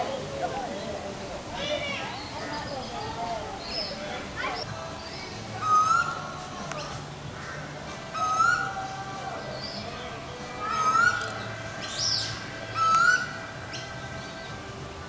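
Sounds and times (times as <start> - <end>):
higher bird chirping call: 1.6 - 7.0, 8.1 - 14.5.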